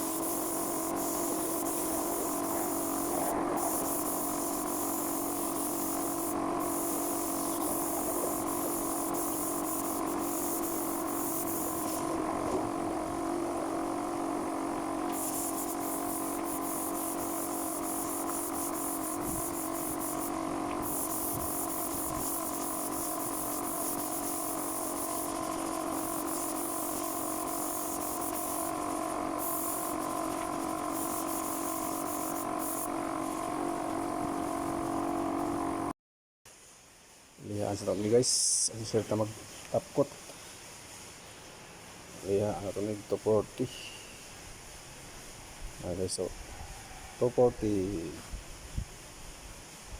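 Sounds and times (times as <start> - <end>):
spray gun air hiss: 0.0 - 35.9
air compressor running: 0.0 - 36.0.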